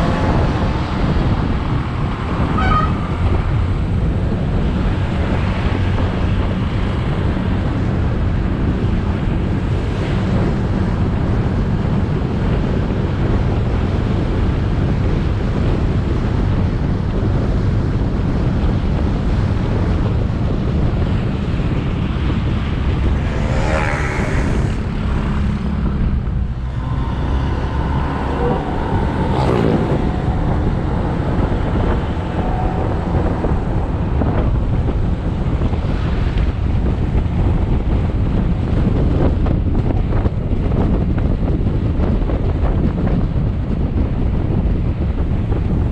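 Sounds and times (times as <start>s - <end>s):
road traffic: 0.0s - 45.9s
wind noise on microphone: 0.0s - 45.9s
motorbike engine running: 10.2s - 45.8s.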